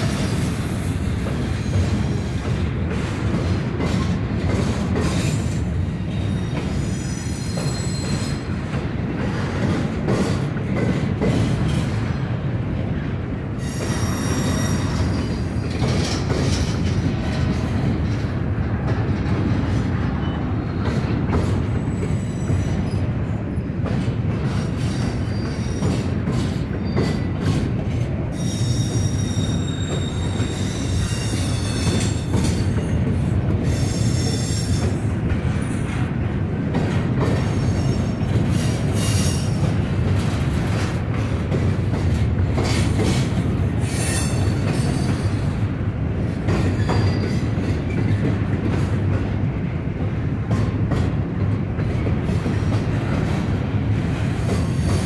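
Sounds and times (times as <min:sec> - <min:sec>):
freight train cars rumbling past: 0:00.0 - 0:55.0
wheels clattering on rail joints: 0:00.0 - 0:55.0
train wheels squealing: 0:04.7 - 0:08.6, 0:13.6 - 0:17.0, 0:20.2 - 0:23.7, 0:24.5 - 0:27.6, 0:28.3 - 0:35.0, 0:37.3 - 0:39.7, 0:42.6 - 0:45.6, 0:46.5 - 0:48.2, 0:54.4 - 0:55.0.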